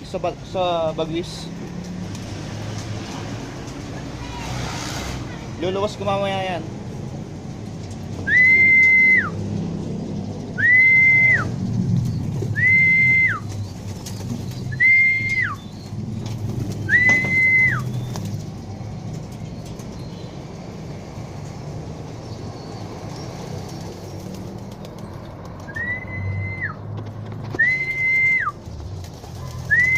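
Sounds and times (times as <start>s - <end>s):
high whistle tones: 8.2s - 9.4s, 10.6s - 11.5s, 12.5s - 13.5s, 14.7s - 15.7s, 16.9s - 18.1s, 25.7s - 26.8s, 27.6s - 28.5s.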